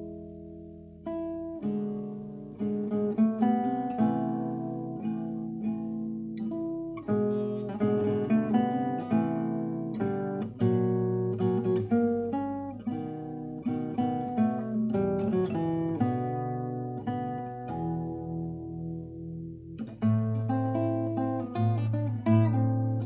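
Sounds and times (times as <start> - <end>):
acoustic guitar solo piece: 0.0 - 23.0.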